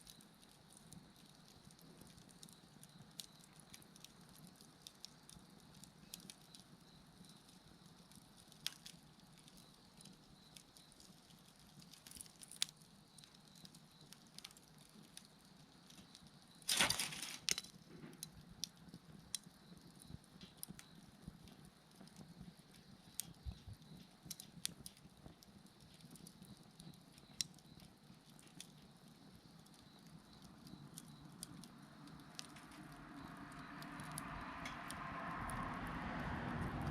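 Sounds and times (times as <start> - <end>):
bonfire crackling: 0.0 - 36.9
sharp fire pops: 8.4 - 35.7.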